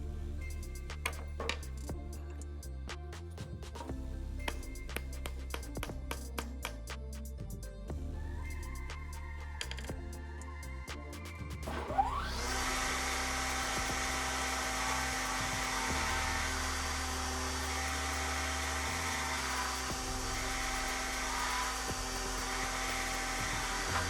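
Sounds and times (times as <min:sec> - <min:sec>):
electric router whining: 0:11.8 - 0:24.0.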